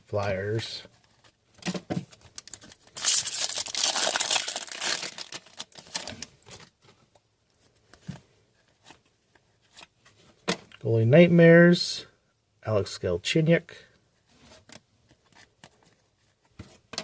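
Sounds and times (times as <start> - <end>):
foil wrapper crinkling: 2.4 - 6.7.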